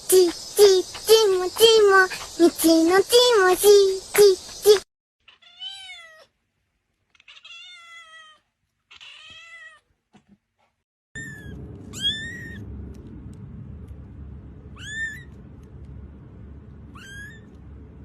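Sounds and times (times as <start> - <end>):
steady background hum: 0.0 - 4.8, 11.2 - 18.0
cat meowing: 5.3 - 6.3, 7.2 - 9.8, 11.2 - 12.6, 14.8 - 15.4, 16.9 - 17.6.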